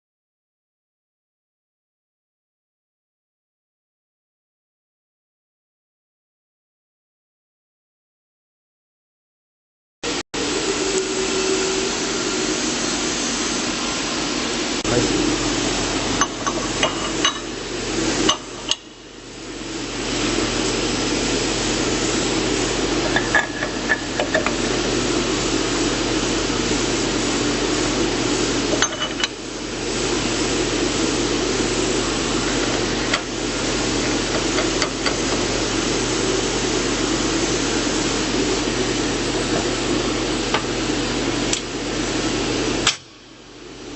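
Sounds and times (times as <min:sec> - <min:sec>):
grinding machine whirring: 0:10.4 - 0:42.9.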